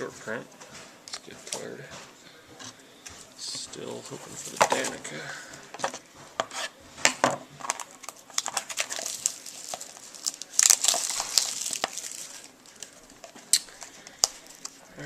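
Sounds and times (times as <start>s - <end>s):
card pack wrapper crinkling: 4.1s - 5.1s, 7.6s - 15.0s.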